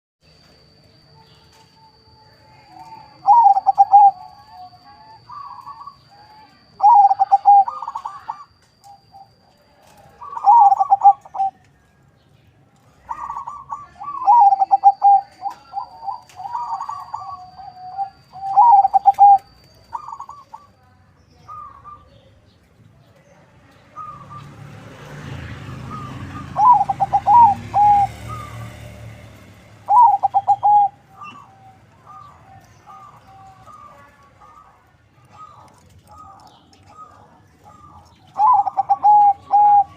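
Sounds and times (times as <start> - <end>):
dove cooing: 2.5 - 11.6, 12.8 - 20.8, 21.4 - 22.3, 25.7 - 39.9.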